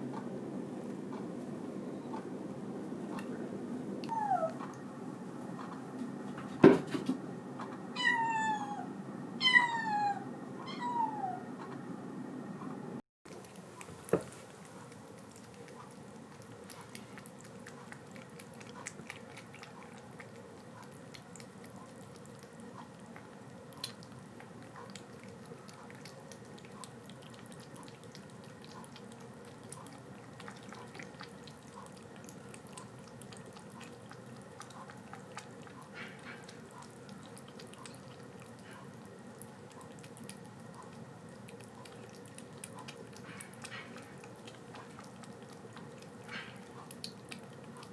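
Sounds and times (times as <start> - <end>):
faint steady hum: 0.0 - 47.9
kitten sucking from bottle: 13.3 - 47.9.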